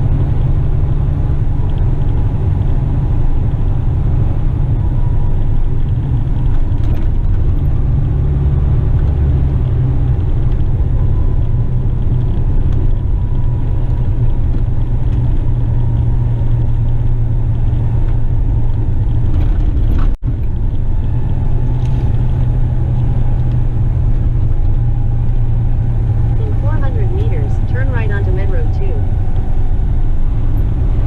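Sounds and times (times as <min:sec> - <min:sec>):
truck engine and road drone: 0:00.0 - 0:31.0.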